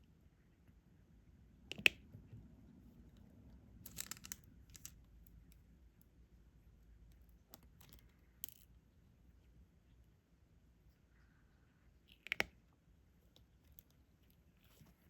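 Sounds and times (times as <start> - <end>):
small plastic clicks and taps: 1.7 - 2.0, 12.1 - 12.6.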